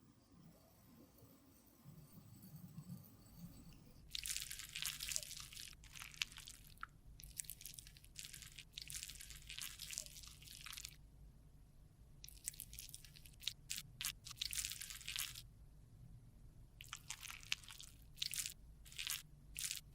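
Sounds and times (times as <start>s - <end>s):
makeup product scratching and crackling: 4.1s - 11.0s, 12.3s - 15.5s, 16.8s - 19.9s.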